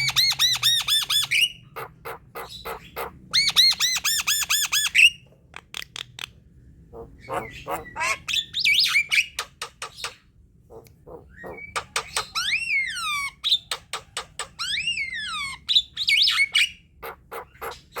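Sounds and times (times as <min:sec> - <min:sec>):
bird chattering song: 0:00.0 - 0:18.0.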